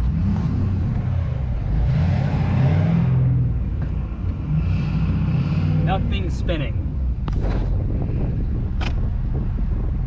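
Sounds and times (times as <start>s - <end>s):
pickup truck engine revving: 0.0s - 3.7s, 4.4s - 7.8s.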